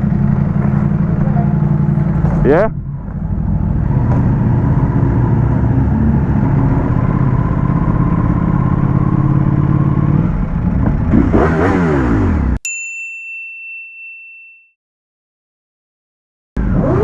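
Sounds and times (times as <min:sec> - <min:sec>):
motorcycle engine revving: 0:00.0 - 0:12.6, 0:16.6 - 0:17.0
bright ding: 0:12.6 - 0:14.8.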